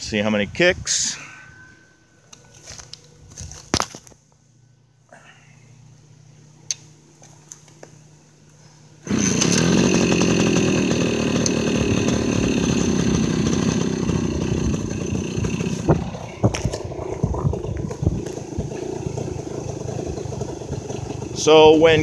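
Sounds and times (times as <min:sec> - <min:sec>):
two-stroke engine running: 0:09.0 - 0:22.0.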